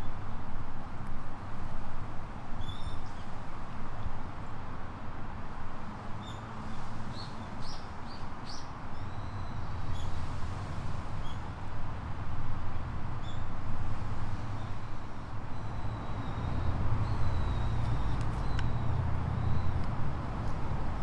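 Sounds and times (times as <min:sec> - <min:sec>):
low outdoor rush: 0:09.1 - 0:21.0.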